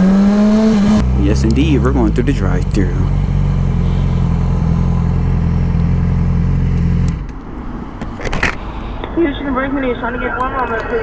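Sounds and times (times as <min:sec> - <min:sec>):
motorcycle engine idling: 0:01.1 - 0:07.0.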